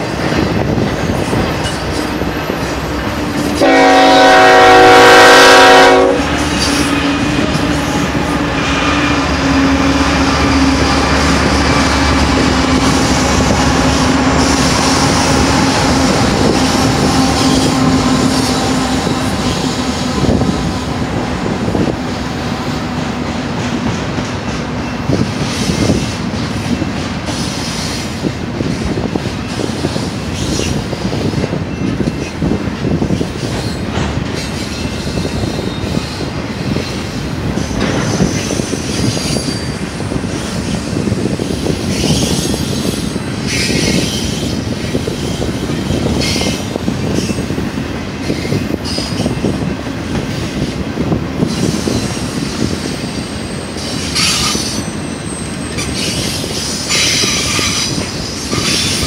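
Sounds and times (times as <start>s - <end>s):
freight cars rumbling and clacking: 0.0s - 3.7s, 6.0s - 59.0s
diesel locomotive hum: 0.0s - 59.0s
locomotive horn blast: 3.6s - 7.3s.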